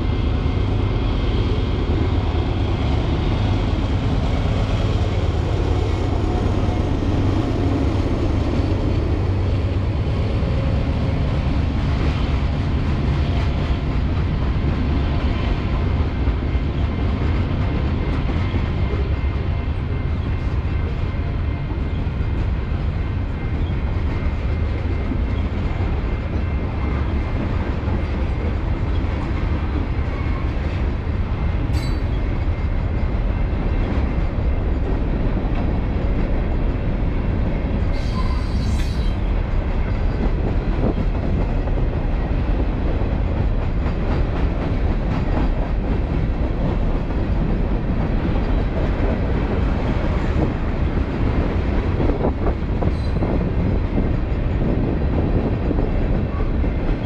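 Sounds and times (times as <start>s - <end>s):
train wheels rumbling on rail: 0.0s - 57.0s
high-pitched wheel squeals: 38.0s - 39.2s.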